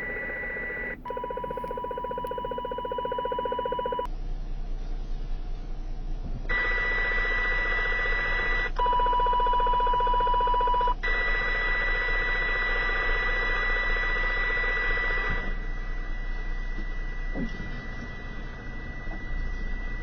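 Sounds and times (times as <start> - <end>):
high electronic tone: 0.0 - 4.1
low pulsing buzz: 0.0 - 8.8, 11.0 - 20.0.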